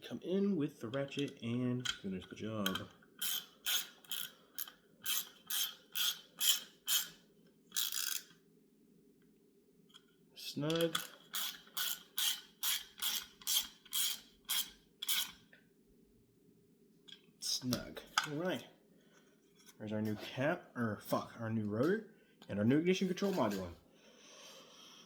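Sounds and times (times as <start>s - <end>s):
hand ratchet clicking: 2.6s - 8.4s, 10.7s - 15.4s.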